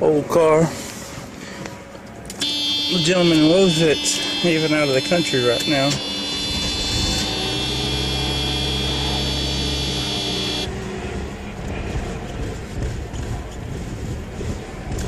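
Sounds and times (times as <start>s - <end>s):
rough-running car engine: 0.6s - 15.0s
electronic warning buzzer: 2.4s - 10.7s.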